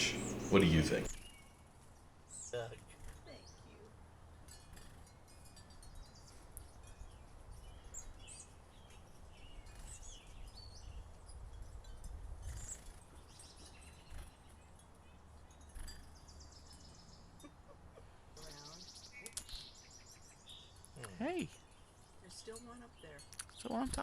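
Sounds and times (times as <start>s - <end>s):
chickadees chirping: 0.0s - 1.1s.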